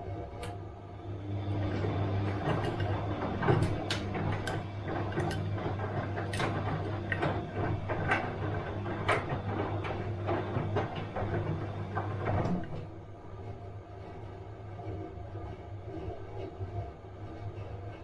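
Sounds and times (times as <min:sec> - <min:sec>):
washing machine motor hum: 0:00.0 - 0:18.0.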